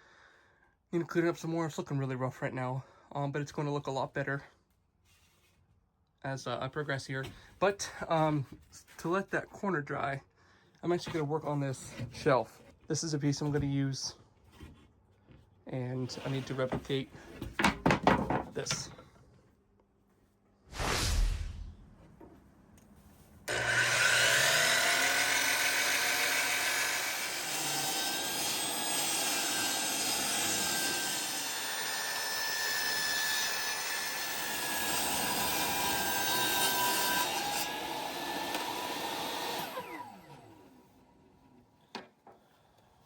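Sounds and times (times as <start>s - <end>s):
knock: 17.5s - 18.5s
power saw cutting wood: 23.5s - 40.8s.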